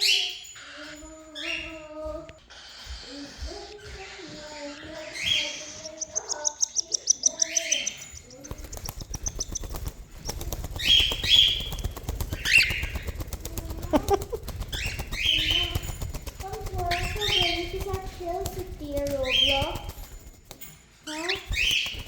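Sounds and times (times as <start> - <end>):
fast fluttering rattle: 6.4 - 22.0.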